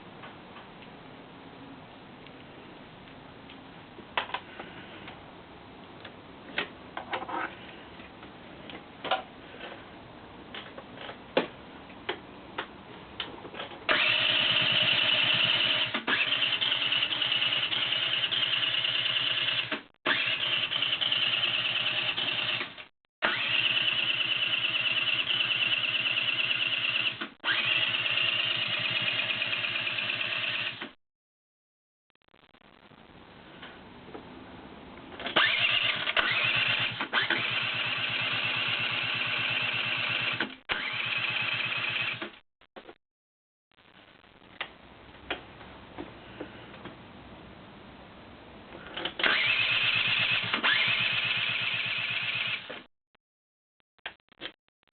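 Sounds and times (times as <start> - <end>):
scooter starter cranking: 13.9 - 30.8, 35.2 - 42.4, 49.0 - 52.7.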